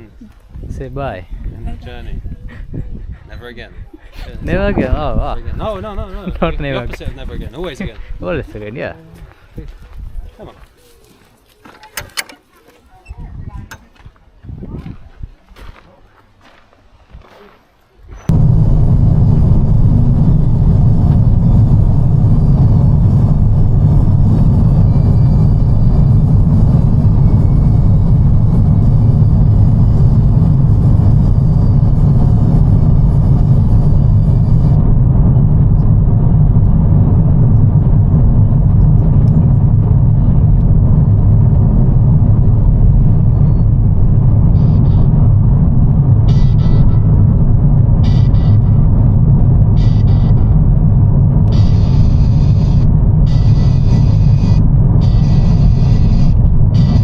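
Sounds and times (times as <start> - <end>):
loud low rumble: 18.3 - 57.0.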